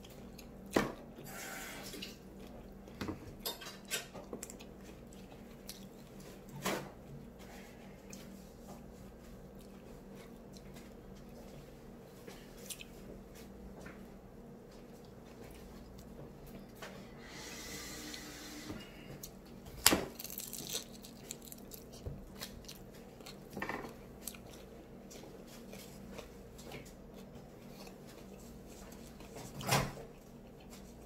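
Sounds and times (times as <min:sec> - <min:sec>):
chewing and biting food: 0:00.0 - 0:06.5, 0:07.2 - 0:11.8, 0:19.2 - 0:31.0.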